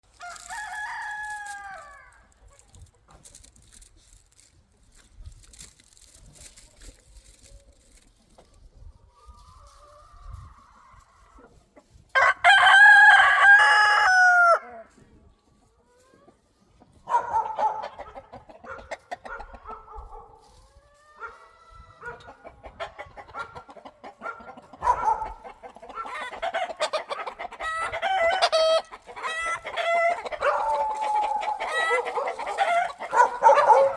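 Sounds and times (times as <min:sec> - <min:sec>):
rooster crowing: 0:00.2 - 0:02.2, 0:12.2 - 0:14.7, 0:29.5 - 0:33.9
chickens clucking: 0:06.0 - 0:12.1, 0:14.9 - 0:33.9.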